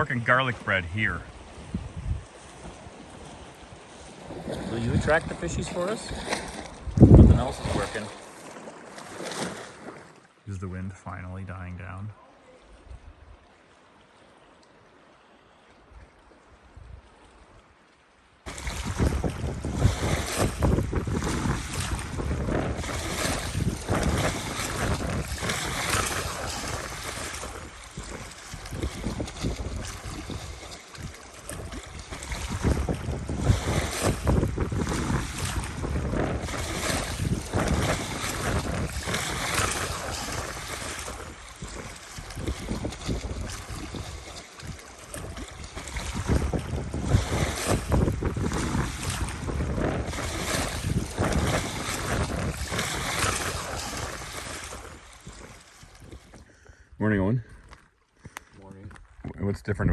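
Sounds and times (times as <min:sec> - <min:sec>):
lake waves: 0:00.0 - 0:59.9
gusty wind buffeting microphone: 0:00.9 - 0:08.2, 0:18.5 - 0:56.7.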